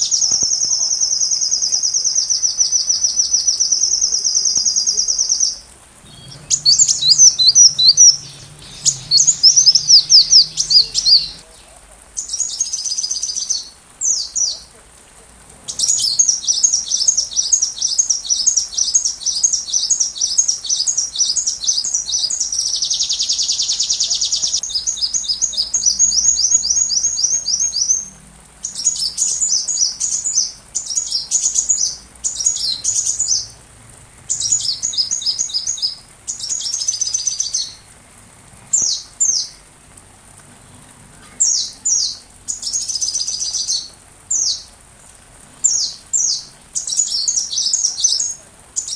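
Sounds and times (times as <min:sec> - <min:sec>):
buzzy bird trill: 0:06.0 - 0:11.6
sunbird chirps and trills: 0:06.0 - 0:12.8.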